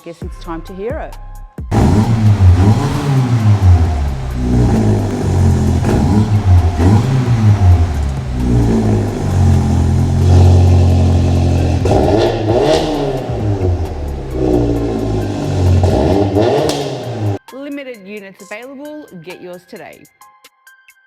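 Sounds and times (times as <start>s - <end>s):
car engine revving: 1.7s - 17.4s.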